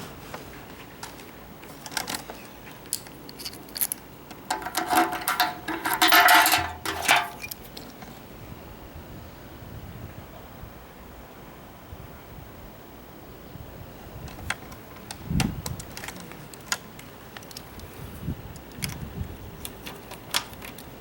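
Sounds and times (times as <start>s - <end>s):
metal pieces clinking and jangling: 3.0s - 7.9s.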